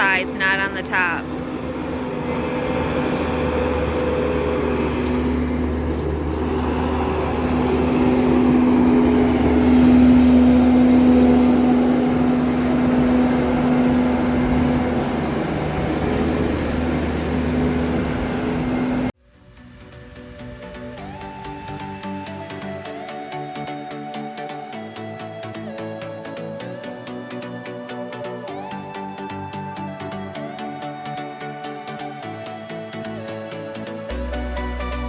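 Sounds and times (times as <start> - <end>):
engine running steadily: 0.0 - 19.2.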